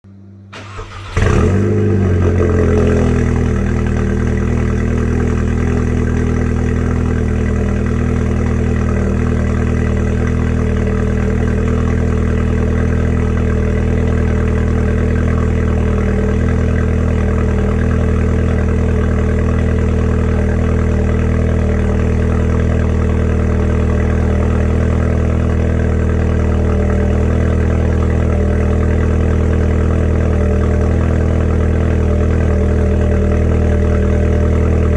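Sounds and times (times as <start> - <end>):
car engine starting and idling: 0.1 - 34.9.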